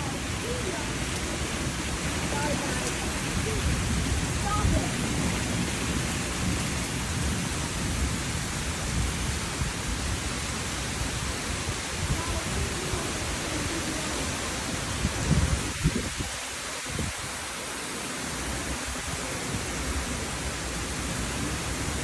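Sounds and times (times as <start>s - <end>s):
low rumble of thunder: 0.0s - 17.3s
steady rain: 0.0s - 22.0s.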